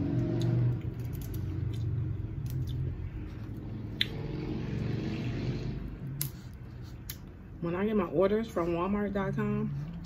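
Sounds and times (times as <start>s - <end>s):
low steady hum: 0.0s - 10.0s
wet chewing: 0.2s - 4.3s.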